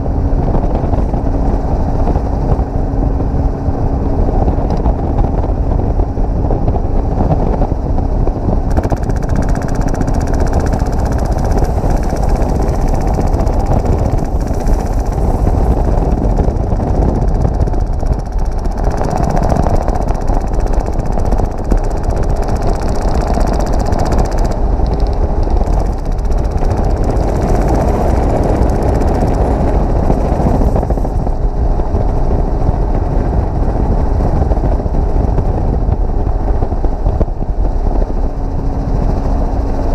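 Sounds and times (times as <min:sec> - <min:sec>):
helicopter engine and rotor noise: 0:00.0 - 0:39.9
airsoft gun full-auto fire: 0:08.7 - 0:15.9.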